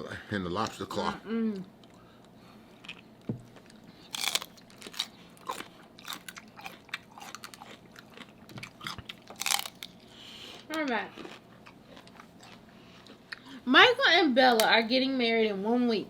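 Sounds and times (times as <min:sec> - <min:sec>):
crunching and chewing shellfish: 0:01.8 - 0:13.6.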